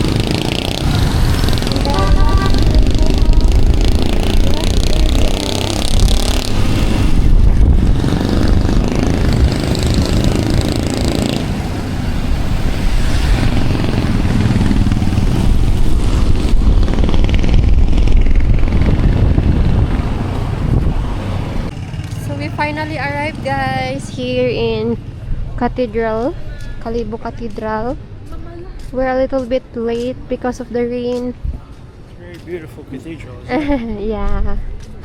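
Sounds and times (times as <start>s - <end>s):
wind on microphone: 0.0s - 21.7s, 31.2s - 32.0s
motorcycle engine: 0.0s - 25.2s
road noise: 0.0s - 35.0s.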